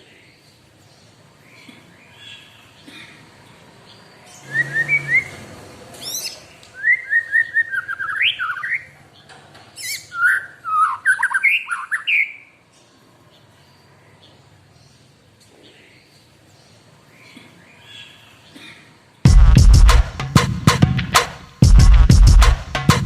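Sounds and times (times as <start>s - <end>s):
bird singing whistled notes: 4.4s - 5.4s, 6.0s - 8.9s, 9.9s - 12.5s.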